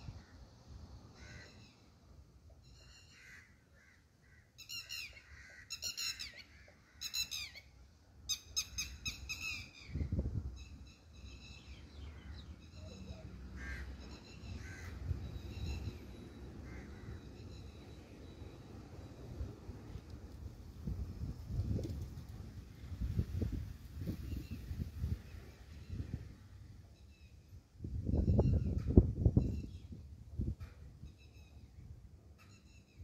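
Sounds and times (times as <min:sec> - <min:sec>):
bird harsh calls: 0:02.6 - 0:07.7.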